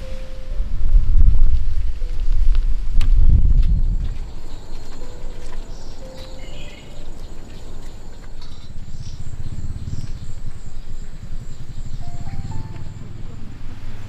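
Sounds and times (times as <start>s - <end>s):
low rumble: 0.0s - 14.0s
high insect buzz: 2.3s - 14.0s
bird chirps: 4.1s - 13.7s.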